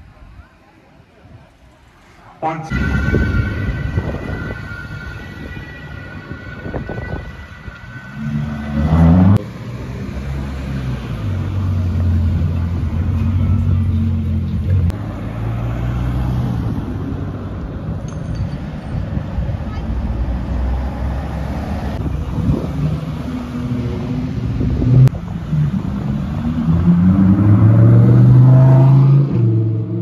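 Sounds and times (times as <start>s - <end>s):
car engine revving: 6.2s - 16.7s, 20.2s - 30.0s.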